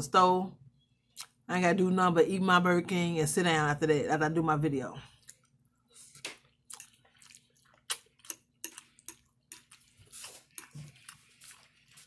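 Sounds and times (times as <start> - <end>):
wet chewing and lip smacks: 6.3 - 12.0.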